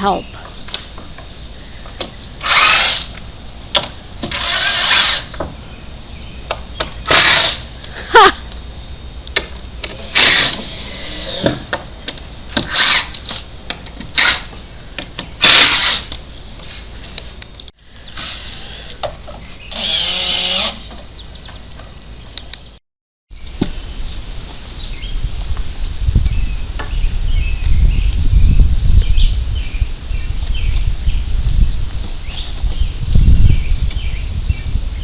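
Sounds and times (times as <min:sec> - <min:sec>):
power drill driving screws: 0:02.4 - 0:03.1, 0:04.3 - 0:05.3, 0:07.1 - 0:07.6, 0:10.1 - 0:11.4, 0:15.4 - 0:16.1, 0:19.7 - 0:20.9.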